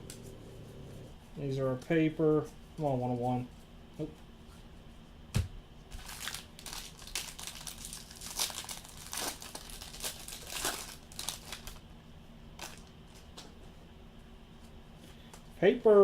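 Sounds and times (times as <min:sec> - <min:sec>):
packaging crinkling and rustling: 0:05.9 - 0:11.9, 0:12.6 - 0:13.4.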